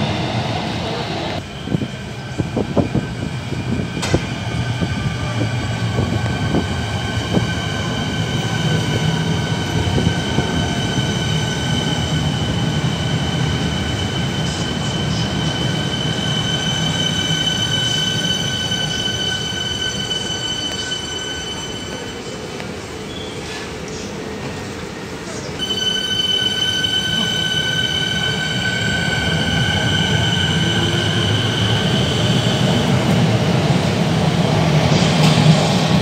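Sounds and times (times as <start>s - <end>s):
high-pitched squeal: 25.6s - 33.0s.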